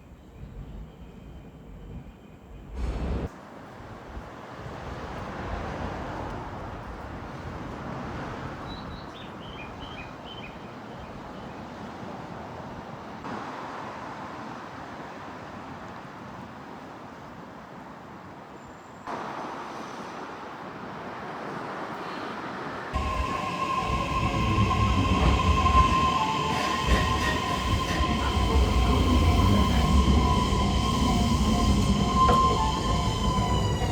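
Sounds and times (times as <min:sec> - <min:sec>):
traffic noise: 0:19.0 - 0:33.9.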